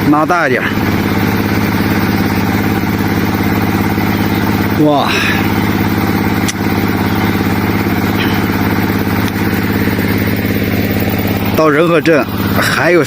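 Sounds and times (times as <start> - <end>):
engine idling: 0.0 - 13.0
sharp click: 6.4 - 6.6.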